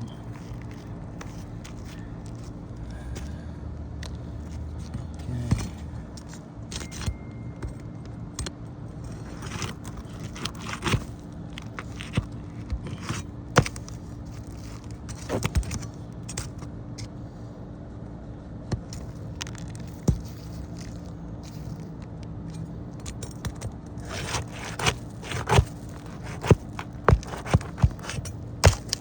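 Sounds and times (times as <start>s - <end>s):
steady low hum: 0.0s - 29.0s
metal tool scraping on shingles: 9.0s - 16.6s, 22.6s - 29.0s.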